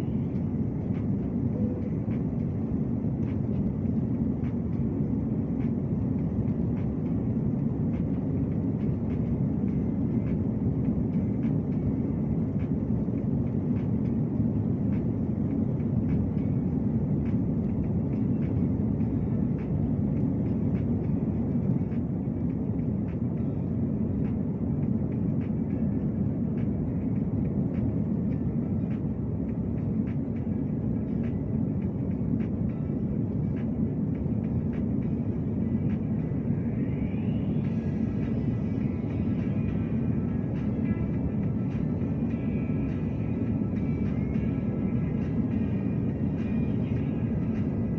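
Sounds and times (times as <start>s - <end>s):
airliner rumble: 0.0s - 47.9s.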